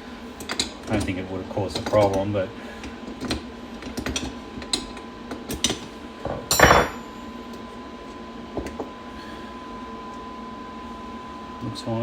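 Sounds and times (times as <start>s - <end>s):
metal parts clinking on workbench: 5.6s - 7.0s
metallic clatter with ring: 6.4s - 7.2s.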